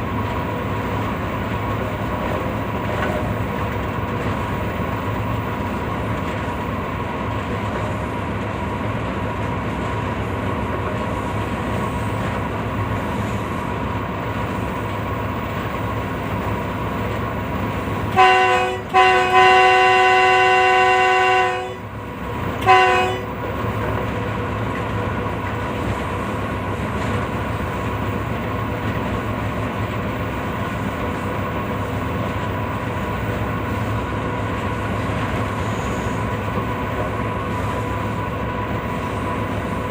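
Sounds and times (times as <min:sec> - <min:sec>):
train rumble: 0:00.0 - 0:39.9
multi-tone train horn: 0:18.0 - 0:23.6.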